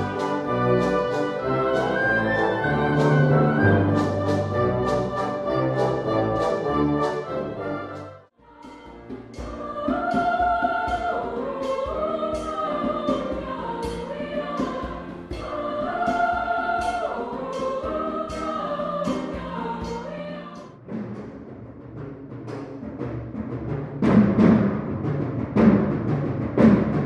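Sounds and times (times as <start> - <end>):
choir singing: 0.0 - 20.8.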